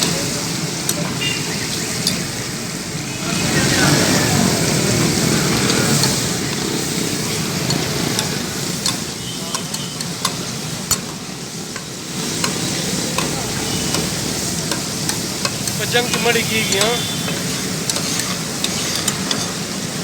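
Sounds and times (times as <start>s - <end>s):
food sizzling on griddle: 0.0s - 20.0s
metal spatula clacking on griddle: 7.5s - 20.0s.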